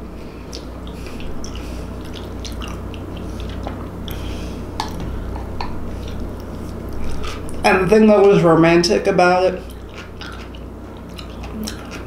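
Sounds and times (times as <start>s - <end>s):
wet chewing and lip smacking: 0.5s - 7.6s, 9.6s - 12.0s.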